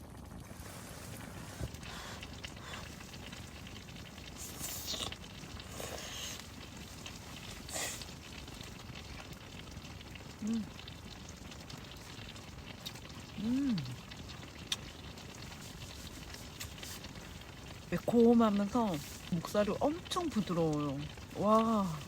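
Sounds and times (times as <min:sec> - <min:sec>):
stew sizzling in a pan: 0:00.0 - 0:22.0
person humming: 0:10.4 - 0:10.7, 0:13.4 - 0:14.0.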